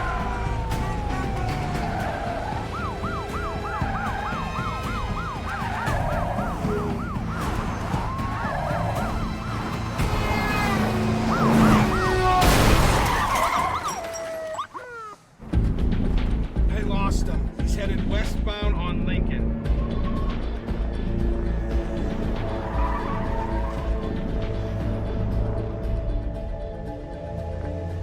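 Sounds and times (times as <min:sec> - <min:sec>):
engine rumble: 0:00.0 - 0:13.4
police sirens wailing and yelping: 0:00.0 - 0:15.4, 0:19.6 - 0:28.0.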